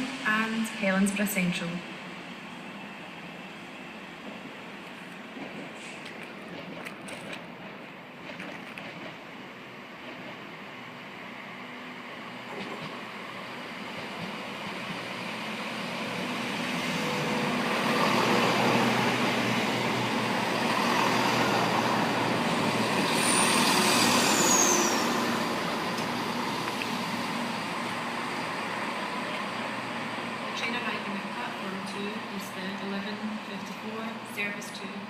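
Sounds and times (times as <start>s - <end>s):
train rumbling: 0.0s - 35.0s
high squeal falling in pitch: 23.2s - 25.4s.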